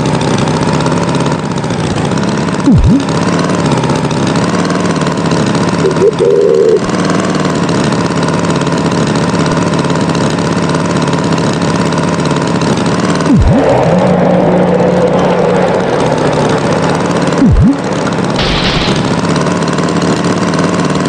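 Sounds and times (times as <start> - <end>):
cartoon tractor engine: 0.0 - 21.0.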